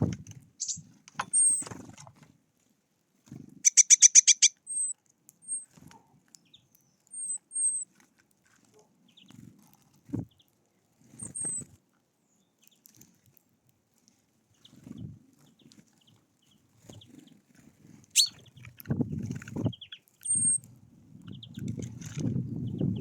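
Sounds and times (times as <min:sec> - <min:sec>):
rustling and wing flutter: 0:00.0 - 0:04.5, 0:07.6 - 0:12.0, 0:12.7 - 0:23.0
thin whistled bird notes: 0:00.6 - 0:01.7, 0:03.6 - 0:05.7, 0:06.4 - 0:07.9, 0:11.2 - 0:11.7, 0:18.2 - 0:18.7, 0:19.6 - 0:20.6
birds chirping: 0:00.6 - 0:01.8, 0:03.6 - 0:05.7, 0:06.4 - 0:07.8, 0:18.1 - 0:20.6, 0:21.3 - 0:23.0.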